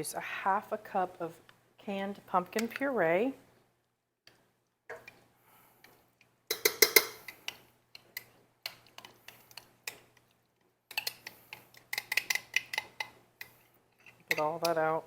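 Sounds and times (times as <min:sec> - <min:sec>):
utensil scraping and tapping cup: 0:06.5 - 0:10.0, 0:10.9 - 0:14.9.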